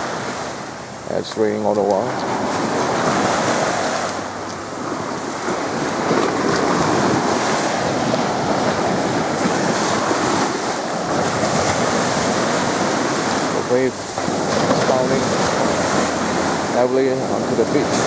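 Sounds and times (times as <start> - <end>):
sea waves breaking on beach: 0.0 - 18.0
wind buffeting microphone: 0.0 - 18.0.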